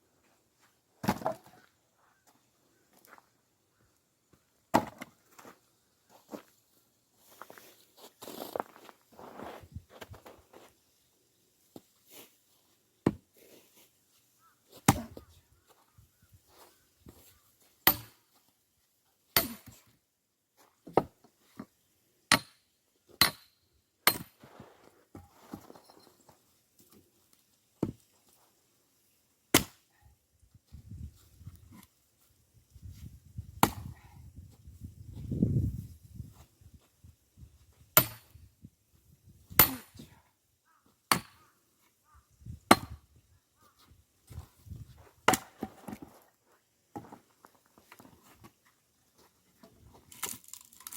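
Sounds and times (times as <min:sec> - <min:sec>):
axe splitting firewood: 0:04.7 - 0:05.2, 0:14.8 - 0:15.2, 0:17.8 - 0:18.2, 0:19.4 - 0:19.9, 0:22.3 - 0:25.7, 0:29.5 - 0:29.9, 0:33.6 - 0:34.0, 0:38.0 - 0:38.4, 0:39.5 - 0:40.1, 0:41.1 - 0:41.4, 0:42.7 - 0:43.0, 0:45.2 - 0:46.2.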